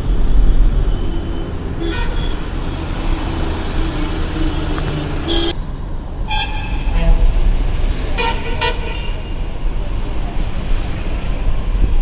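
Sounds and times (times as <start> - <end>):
road traffic rumble: 0.0 - 12.0
vehicle horn toot: 1.8 - 2.4, 4.8 - 5.6, 6.3 - 7.3.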